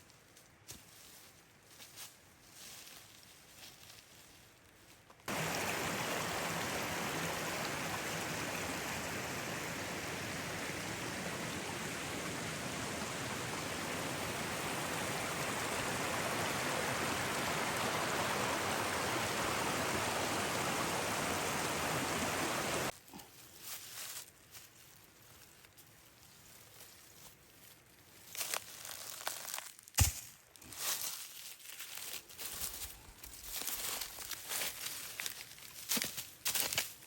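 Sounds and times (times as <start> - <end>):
mountain water rushing: 5.3 - 22.9.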